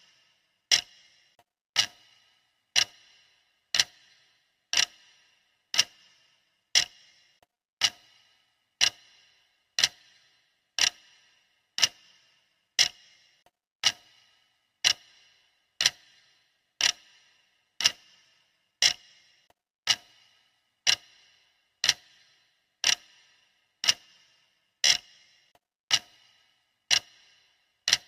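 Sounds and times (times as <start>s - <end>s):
clock ticking: 0.0s - 28.0s.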